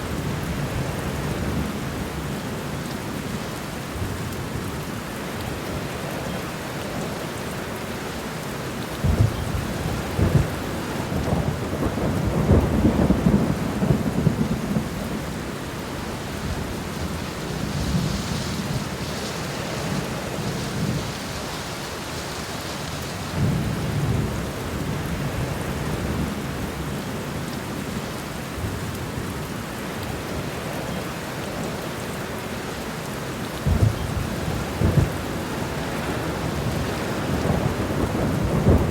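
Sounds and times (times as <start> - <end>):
steady rain falling: 0.0 - 38.9
thunder rumbling: 9.0 - 21.3, 33.6 - 38.9.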